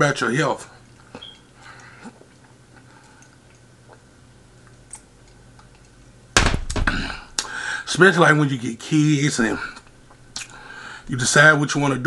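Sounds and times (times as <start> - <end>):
man chewing food: 0.8 - 6.3, 9.8 - 10.8
faint mouth clicks: 10.4 - 10.6.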